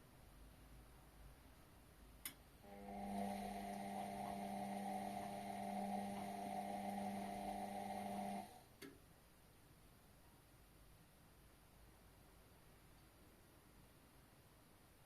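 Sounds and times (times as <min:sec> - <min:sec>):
washing machine electric hum: 0:02.6 - 0:08.7.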